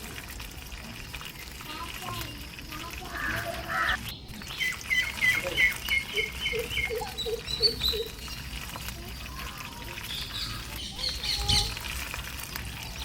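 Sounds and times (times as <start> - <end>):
high bird chirping: 3.2 - 8.5, 10.1 - 11.8.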